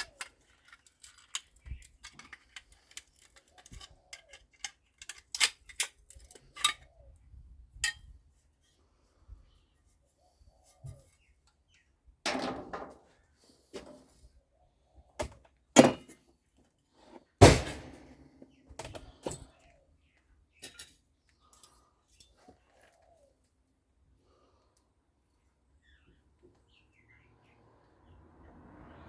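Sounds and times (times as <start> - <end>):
metal parts knocking and clanking: 0.0 - 6.8.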